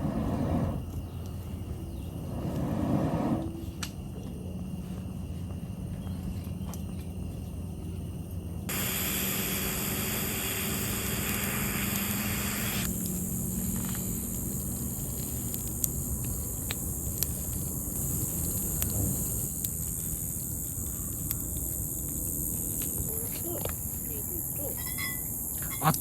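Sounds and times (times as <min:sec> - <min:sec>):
small pops and crackles: 0:08.7 - 0:20.2
food sizzling on a grill: 0:08.7 - 0:25.9.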